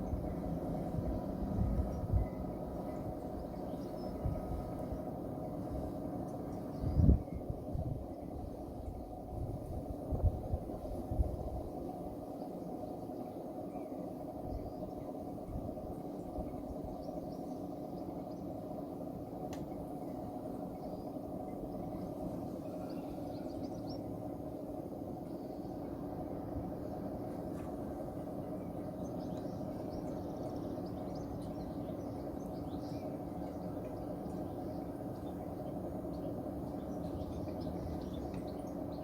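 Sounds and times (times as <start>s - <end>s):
faint bird chirps: 20.6s - 24.2s.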